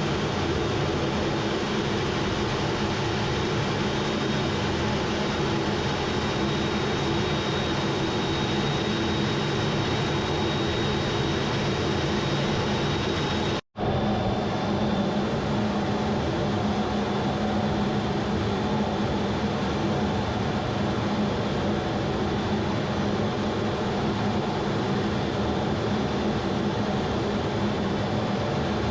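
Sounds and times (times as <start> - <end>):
thin high whine: 0.0 - 21.6
jet engine noise: 0.0 - 28.9.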